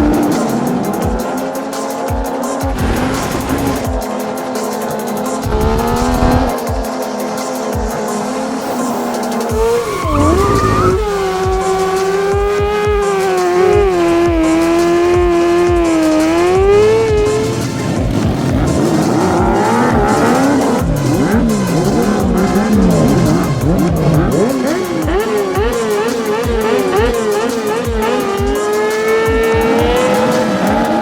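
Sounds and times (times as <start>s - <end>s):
engine revving at high revs: 0.0s - 31.0s
music with steady beat: 0.0s - 31.0s
tyre squeal: 9.5s - 11.6s.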